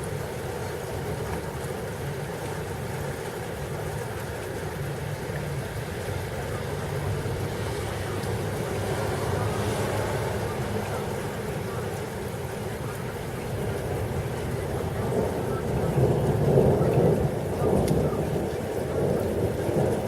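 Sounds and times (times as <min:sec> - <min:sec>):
heavy rain: 0:00.0 - 0:20.0
wind: 0:00.0 - 0:20.0.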